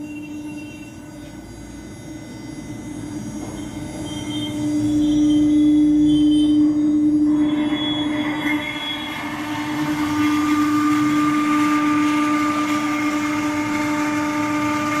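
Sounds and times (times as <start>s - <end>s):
router spindle whine: 0.0s - 15.0s
rushing noise: 7.3s - 13.6s.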